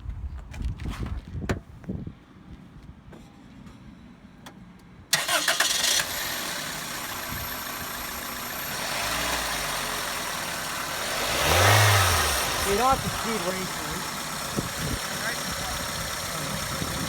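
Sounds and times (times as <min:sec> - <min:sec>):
starter motor cranking: 0:05.2 - 0:09.8
car engine idling: 0:05.2 - 0:17.0.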